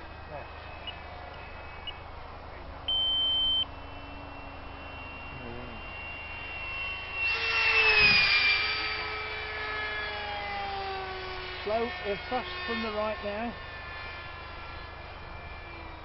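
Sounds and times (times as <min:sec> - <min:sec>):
model jet whining past: 0:00.0 - 0:16.0
electronic beep: 0:02.9 - 0:08.2.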